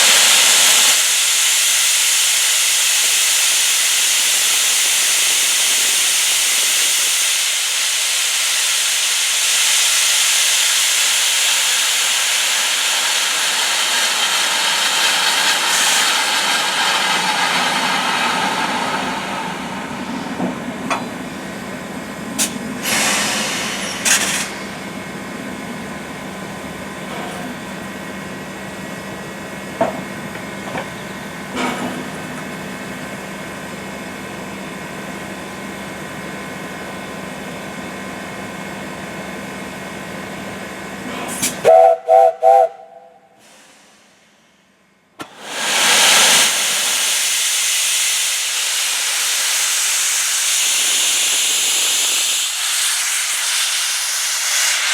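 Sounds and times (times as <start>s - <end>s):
steam hissing: 0.0s - 26.5s, 41.2s - 44.4s, 45.2s - 54.9s
locomotive steady hum: 7.5s - 43.4s
steam whistle toots: 41.4s - 43.8s.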